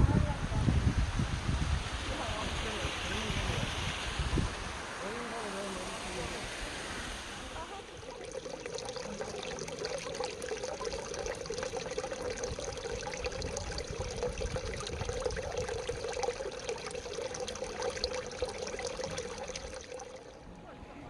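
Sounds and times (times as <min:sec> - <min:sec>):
water trickling and splashing: 0:01.8 - 0:20.5.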